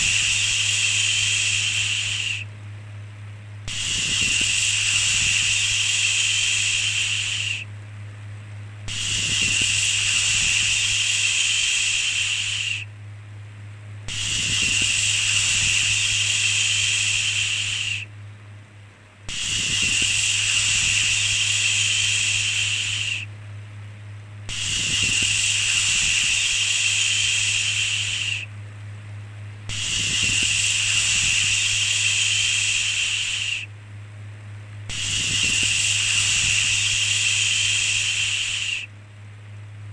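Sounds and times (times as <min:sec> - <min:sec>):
shushing hiss: 0:00.0 - 0:02.5, 0:03.6 - 0:07.7, 0:08.8 - 0:12.9, 0:14.0 - 0:18.1, 0:19.2 - 0:23.3, 0:24.5 - 0:28.5, 0:29.6 - 0:33.7, 0:34.9 - 0:38.9
steady low hum: 0:00.0 - 0:39.9.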